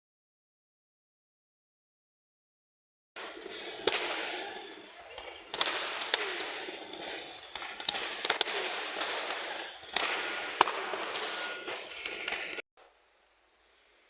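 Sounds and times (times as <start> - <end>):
sharp slaps and knocks: 3.2 - 12.6
steady indoor din: 3.2 - 12.6.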